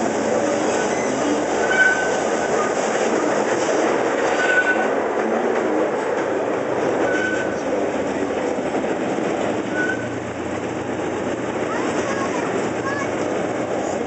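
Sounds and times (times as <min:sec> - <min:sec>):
wheels rumbling on rails: 0:00.0 - 0:14.0
short high wheel squeals: 0:00.7 - 0:02.7, 0:04.3 - 0:04.9, 0:07.0 - 0:07.6, 0:09.7 - 0:10.2.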